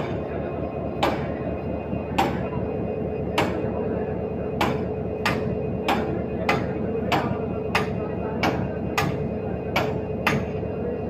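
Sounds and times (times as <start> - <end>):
diesel locomotive humming: 0.0 - 11.0
repeating sharp knock: 1.0 - 1.3, 3.4 - 3.7, 4.6 - 10.5.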